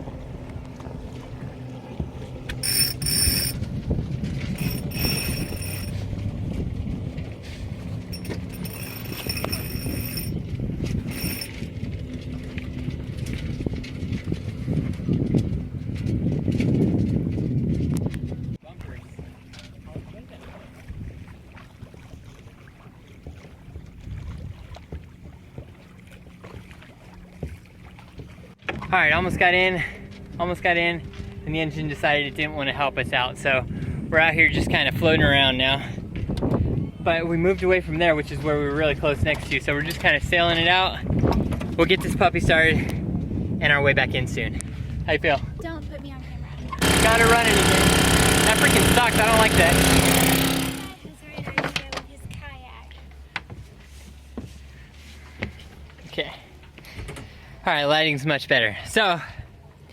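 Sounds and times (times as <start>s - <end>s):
line running through pulley block: 2.6s - 3.6s, 4.5s - 6.0s, 8.1s - 10.4s, 11.0s - 11.6s
wind rumbling on microphone: 3.3s - 20.2s, 23.3s - 25.8s, 30.2s - 46.8s.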